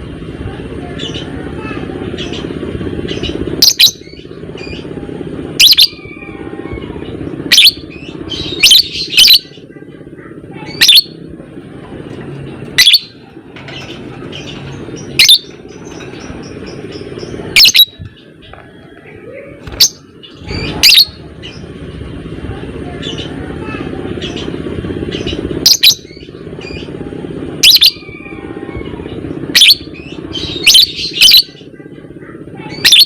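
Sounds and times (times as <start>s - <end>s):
lovebird shrill calls: 5.6s - 6.1s, 7.5s - 9.5s, 10.7s - 11.1s, 15.0s - 16.0s, 17.6s - 18.0s, 19.7s - 21.1s, 29.5s - 31.6s.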